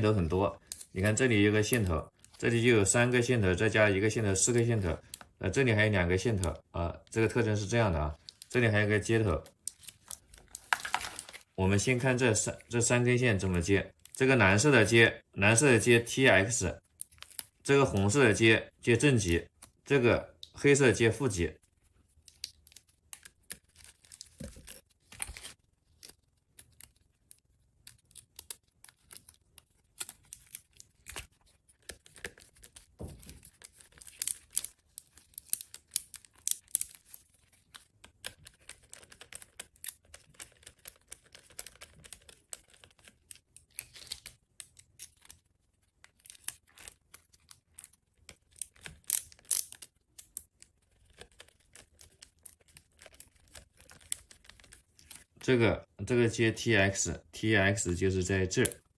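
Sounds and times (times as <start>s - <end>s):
wires and connectors clicking: 46.0s - 55.4s.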